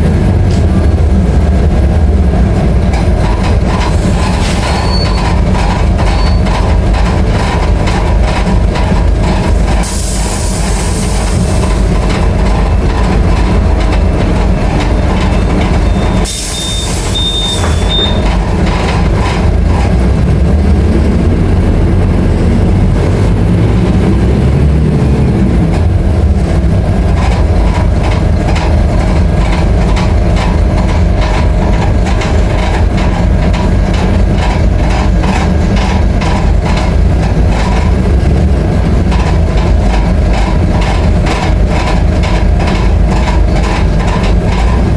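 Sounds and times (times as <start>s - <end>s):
bus diesel engine running: 0.0s - 44.9s
short high beep: 15.9s - 18.2s.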